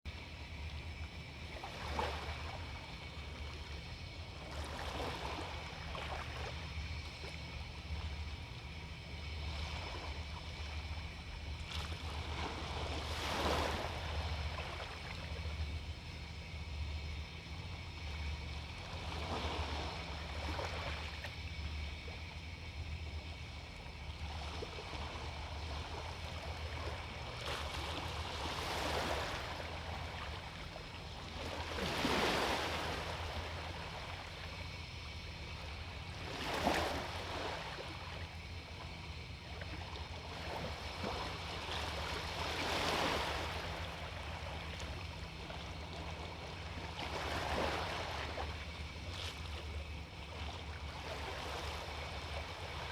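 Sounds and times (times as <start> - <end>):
small waves breaking on beach: 24.6 - 34.4, 39.8 - 49.7.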